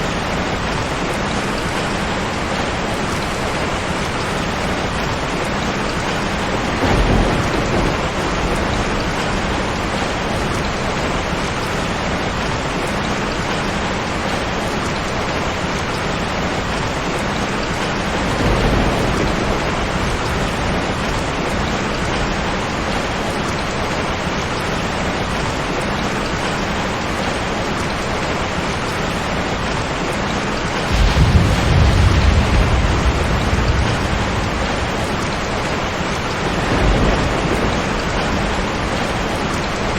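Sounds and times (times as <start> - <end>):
thunder rumbling: 0.0 - 12.2, 16.6 - 24.5, 30.6 - 39.9
heavy rain: 0.0 - 39.9.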